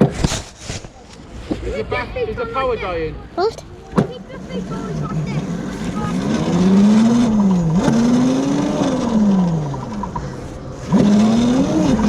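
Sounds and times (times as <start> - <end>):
electric motorbike motor whining: 4.5 - 12.0.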